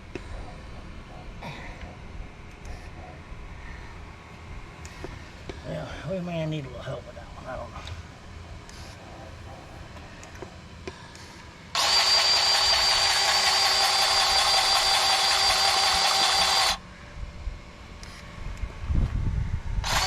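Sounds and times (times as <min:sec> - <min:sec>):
grease gun motor whine: 0:11.7 - 0:16.9, 0:19.8 - 0:20.0.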